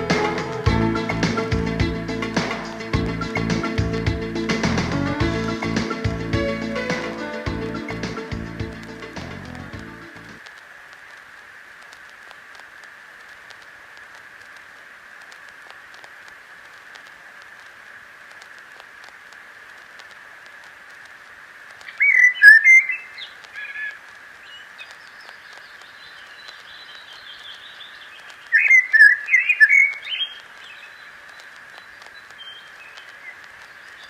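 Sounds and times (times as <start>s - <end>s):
steady hiss: 0.0s - 34.0s
bird-like chirping and trilling: 21.9s - 24.6s, 26.7s - 31.0s.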